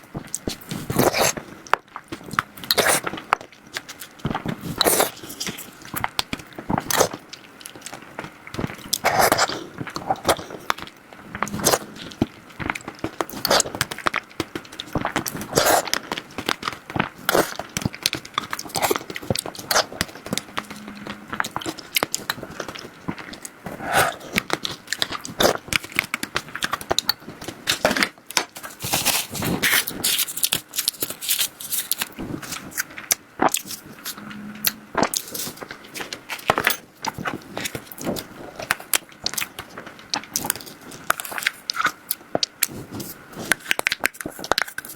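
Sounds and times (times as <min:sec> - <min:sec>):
person biting and chewing: 0:00.3 - 0:01.5, 0:02.1 - 0:07.2, 0:08.6 - 0:28.1.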